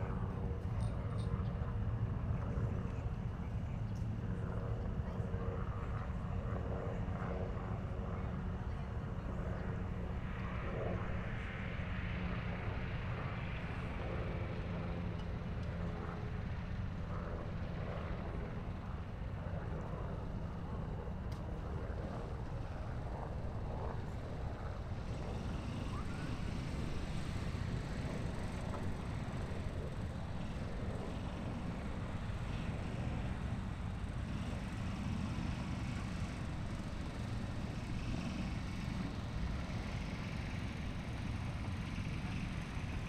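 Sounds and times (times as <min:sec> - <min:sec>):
distant boat traffic rumble: 0:00.0 - 0:43.0
distant engine droning: 0:20.8 - 0:43.0.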